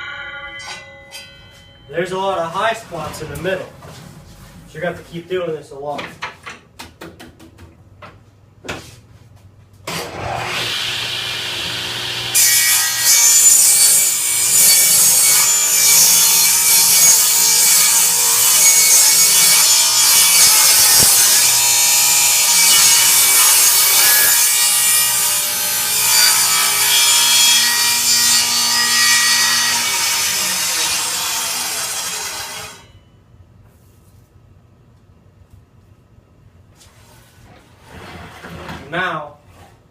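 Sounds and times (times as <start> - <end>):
table saw starting up: 9.9 - 12.3
saw blade cutting wood: 9.9 - 33.0.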